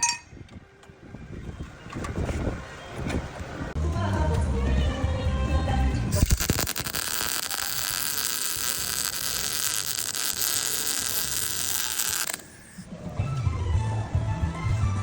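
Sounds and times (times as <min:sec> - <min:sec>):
power tool buzzing on metal: 0:06.2 - 0:12.9.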